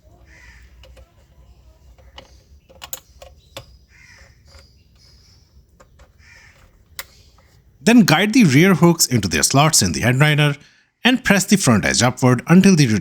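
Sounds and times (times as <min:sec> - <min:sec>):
squeaky plastic scrapes: 0:00.2 - 0:07.7
plastic parts clicking: 0:00.5 - 0:07.8.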